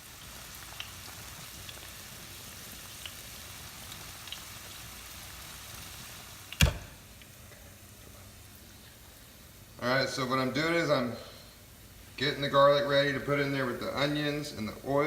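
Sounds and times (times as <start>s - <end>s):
onions sizzling in oil: 0.0s - 10.4s
faint oil pops: 6.5s - 7.3s.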